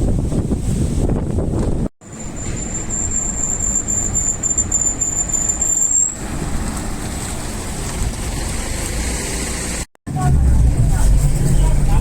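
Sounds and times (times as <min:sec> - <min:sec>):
steady vehicle noise: 0:00.0 - 0:12.0.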